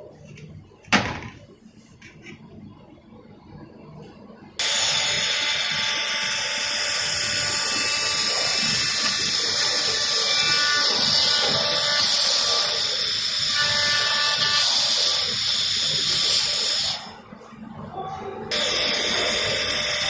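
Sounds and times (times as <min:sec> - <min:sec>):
welding hiss: 0:04.6 - 0:17.2, 0:18.5 - 0:20.0.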